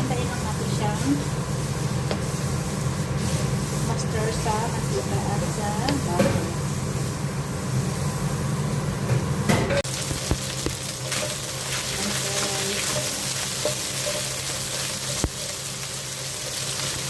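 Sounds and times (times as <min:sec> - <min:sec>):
chicken sizzling in oil: 0:09.8 - 0:17.0.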